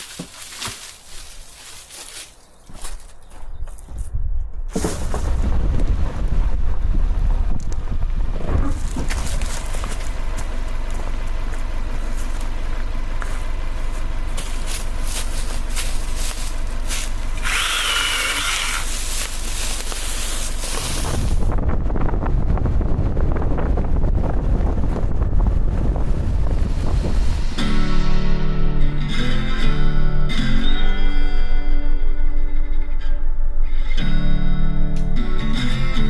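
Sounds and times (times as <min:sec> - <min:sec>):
wind rumble on microphone: 0:02.8 - 0:12.8, 0:18.2 - 0:29.0
power tool running: 0:14.4 - 0:21.3.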